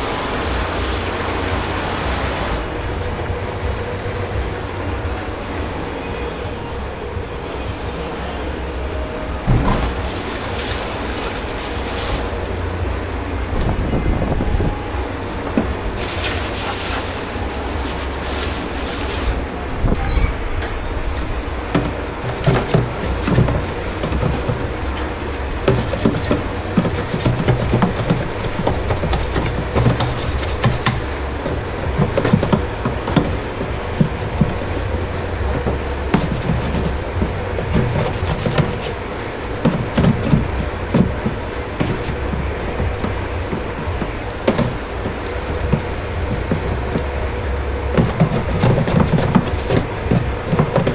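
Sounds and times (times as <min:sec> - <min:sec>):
rushing hiss: 0:00.0 - 0:02.7, 0:09.5 - 0:12.5, 0:14.9 - 0:19.5
low machine rumble: 0:00.0 - 0:50.9
dishes and utensils clattering: 0:19.8 - 0:50.9.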